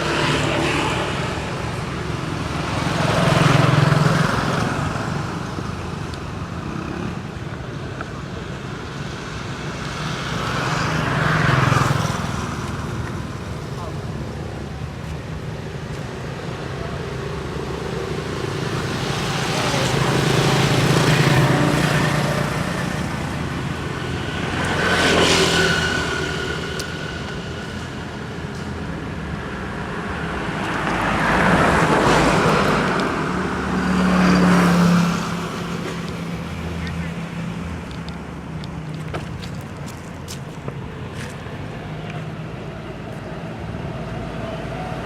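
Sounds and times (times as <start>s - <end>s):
vehicles passing: 0.0s - 45.0s
steady engine hum: 11.8s - 45.0s.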